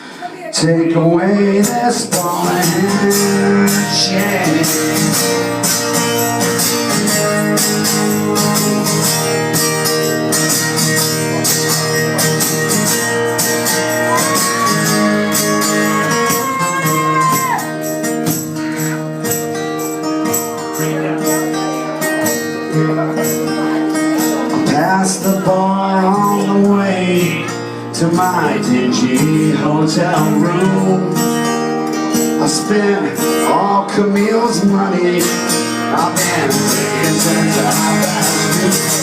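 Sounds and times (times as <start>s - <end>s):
strummed guitars: 0.0s - 39.0s
tambourine jingles: 4.3s - 24.6s, 25.2s - 27.5s.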